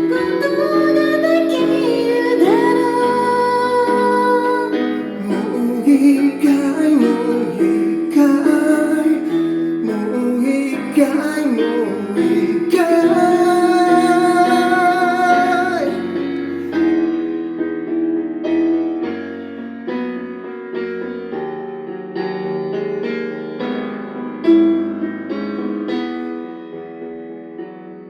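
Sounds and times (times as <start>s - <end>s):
woman singing with vibrato: 0.0s - 16.2s
piano accompaniment: 0.0s - 28.0s.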